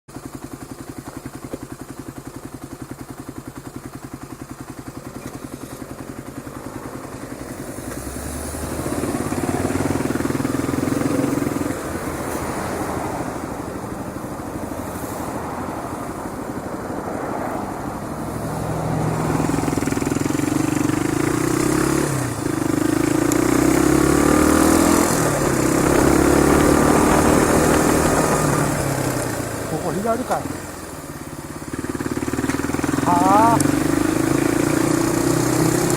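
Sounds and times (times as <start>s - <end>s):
motorcycle engine accelerating: 0.1s - 35.9s.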